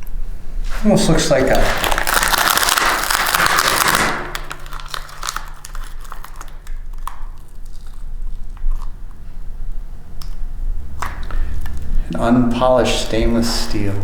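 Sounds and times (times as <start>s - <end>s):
dense crinkling and crackling: 0.6s - 9.4s, 11.0s - 14.0s
faint low hum: 4.1s - 14.0s.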